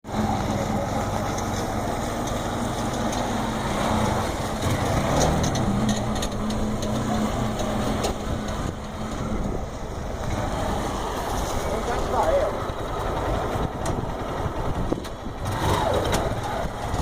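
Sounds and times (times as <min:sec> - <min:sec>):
small engine running: 0:00.1 - 0:17.0.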